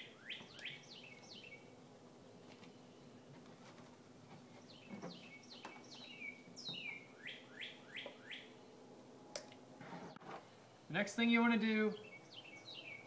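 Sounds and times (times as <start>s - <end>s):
songbird whistling: 0.1s - 1.6s, 4.8s - 8.5s.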